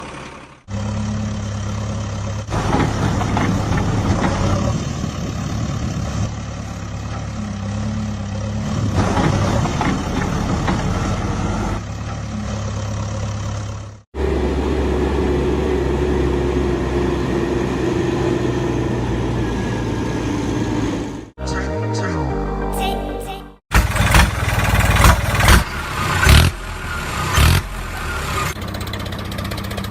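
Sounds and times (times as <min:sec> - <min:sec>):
engine idling: 0:00.0 - 0:08.8, 0:23.7 - 0:29.9.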